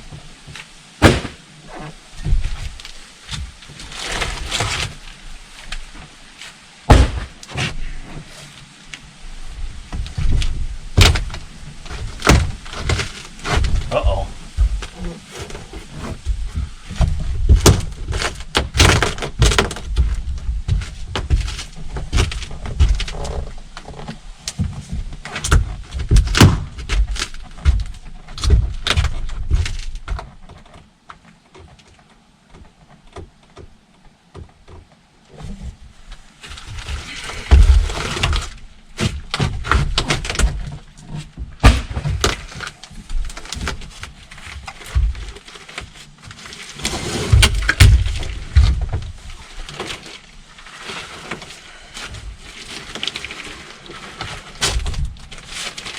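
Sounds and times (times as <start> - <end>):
knocks and thuds of hands-on work: 0.1 - 5.0, 6.9 - 8.3, 9.9 - 30.8, 36.6 - 46.4, 47.3 - 49.9.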